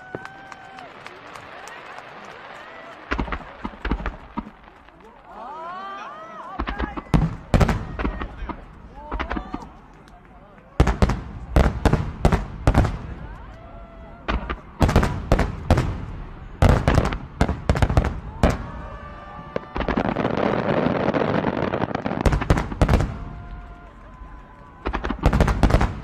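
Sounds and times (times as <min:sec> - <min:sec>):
fireworks shells bursting: 0:01.4 - 0:05.2.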